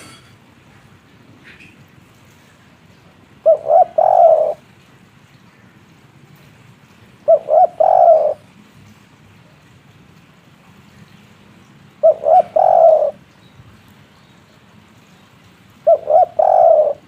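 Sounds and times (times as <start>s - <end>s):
dove cooing: 3.4s - 4.7s, 7.2s - 8.4s, 12.0s - 13.2s, 15.8s - 17.0s.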